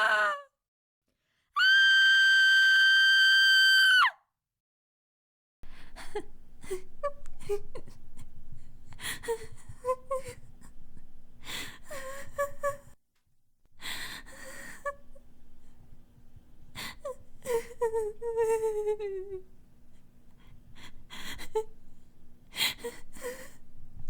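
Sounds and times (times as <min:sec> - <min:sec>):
woman crying and sobbing: 0:05.7 - 0:08.3, 0:09.0 - 0:13.0, 0:13.8 - 0:15.3, 0:16.7 - 0:19.5, 0:20.8 - 0:21.8.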